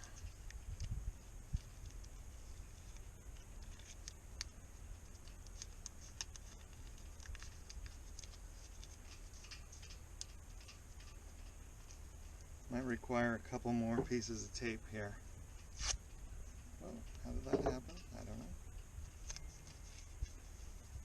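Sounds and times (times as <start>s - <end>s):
low background rumble: 0.0s - 21.0s
adhesive tape tearing: 15.7s - 16.0s.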